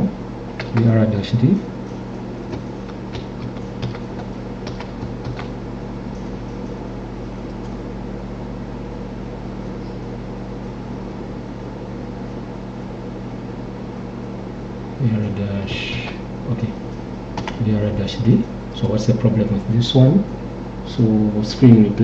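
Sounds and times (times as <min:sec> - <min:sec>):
low electrical hum: 0:00.0 - 0:22.0
computer keyboard keystrokes: 0:00.6 - 0:00.9, 0:02.5 - 0:05.5, 0:17.4 - 0:17.6.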